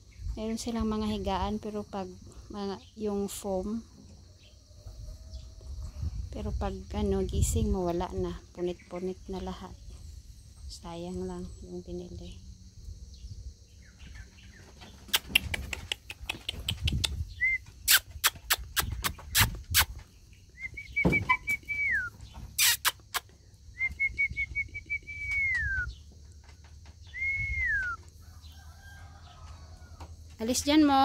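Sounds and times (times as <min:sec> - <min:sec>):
bird whistled call: 0:20.5 - 0:23.1, 0:23.7 - 0:26.0, 0:27.0 - 0:28.0.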